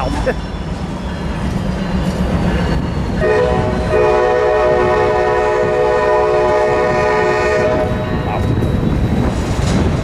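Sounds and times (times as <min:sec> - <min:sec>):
locomotive air horn blast: 0:03.2 - 0:08.1.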